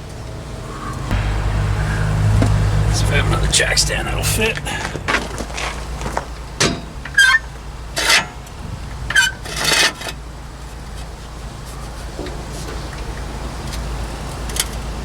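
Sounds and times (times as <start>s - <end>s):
low hum: 0.4s - 6.6s.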